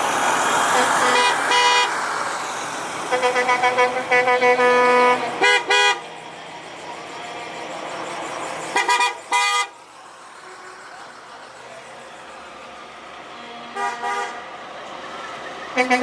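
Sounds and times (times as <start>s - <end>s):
traffic: 0.0s - 16.0s
truck horns tooting: 0.4s - 2.2s, 2.9s - 6.2s, 8.7s - 9.8s, 13.3s - 14.7s, 15.7s - 16.0s.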